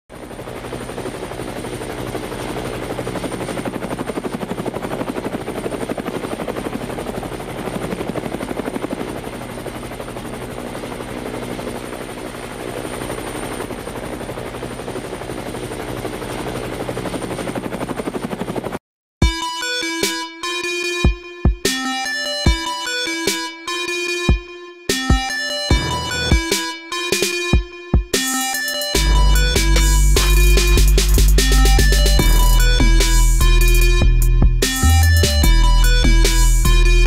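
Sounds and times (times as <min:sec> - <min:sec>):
high motor whine: 0:25.7 - 0:27.7
toy helicopter rotor chopping buzz: 0:28.2 - 0:37.0.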